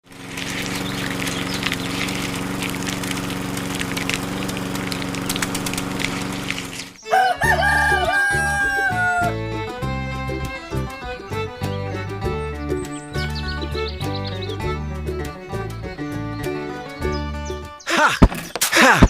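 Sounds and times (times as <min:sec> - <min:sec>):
mechanical drone: 0:00.0 - 0:09.4
fiddle-like music: 0:07.0 - 0:18.2.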